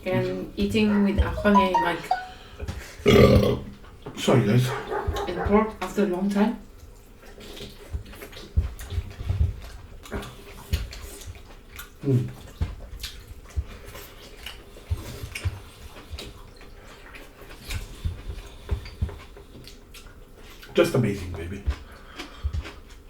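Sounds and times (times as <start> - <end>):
wet chewing and lip-smacking: 6.8 - 20.8, 21.6 - 23.0.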